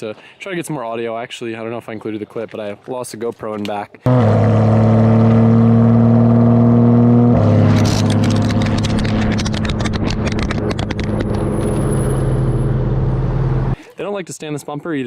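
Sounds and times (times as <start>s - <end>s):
exhaust crackles and clicks: 4.1s - 13.8s
loud car engine running: 4.1s - 13.8s.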